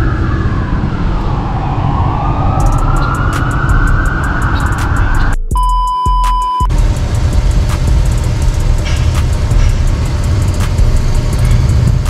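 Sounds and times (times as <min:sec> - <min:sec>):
emergency siren wailing: 0:00.0 - 0:05.4
road traffic rumble: 0:00.0 - 0:05.5, 0:06.7 - 0:12.0
steady high tone: 0:00.0 - 0:05.9.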